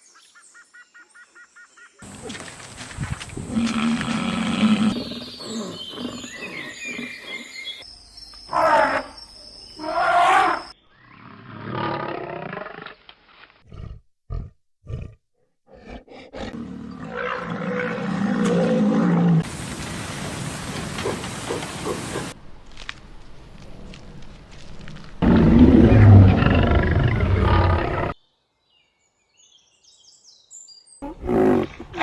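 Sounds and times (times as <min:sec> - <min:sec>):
big cat roaring: 0:03.3 - 0:06.6, 0:13.7 - 0:22.4, 0:25.2 - 0:28.2.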